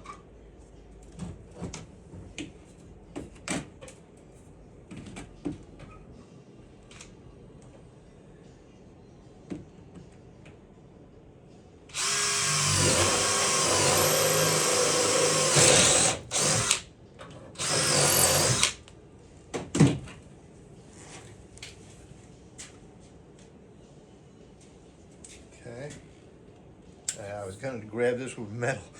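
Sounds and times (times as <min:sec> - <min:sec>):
power drill boring into steel: 0:12.0 - 0:16.8, 0:17.6 - 0:18.8.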